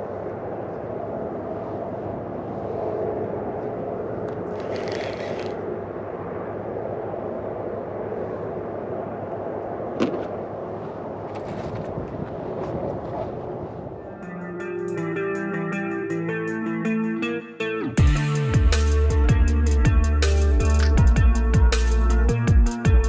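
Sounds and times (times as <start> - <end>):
sharp click: 20.7 - 21.0.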